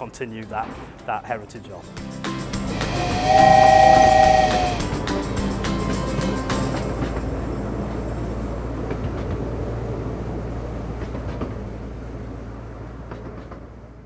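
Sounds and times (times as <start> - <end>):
railway carriages rumbling: 0.0 - 14.0.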